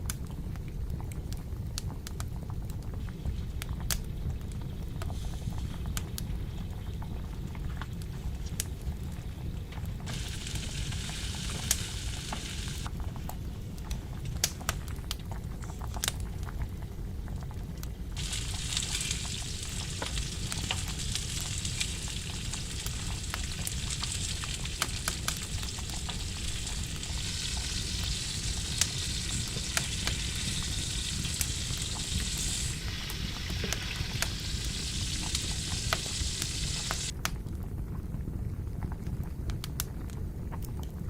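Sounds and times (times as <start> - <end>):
oil popping and crackling: 0.0 - 38.1
food sizzling in a pan: 10.1 - 12.9, 18.2 - 37.1.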